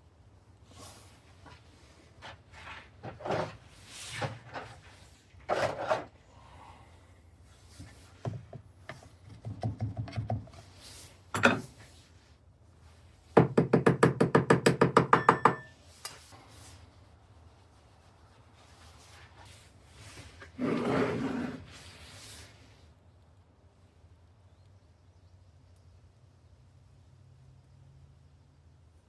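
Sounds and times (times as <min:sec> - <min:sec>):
scraping and knocking on sand mold: 0:02.2 - 0:06.1, 0:20.0 - 0:21.8.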